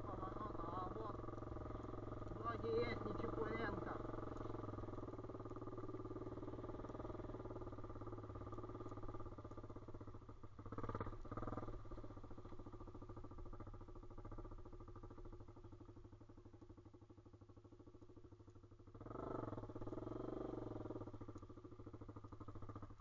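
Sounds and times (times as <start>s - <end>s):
motorbike engine running: 0.0s - 23.0s.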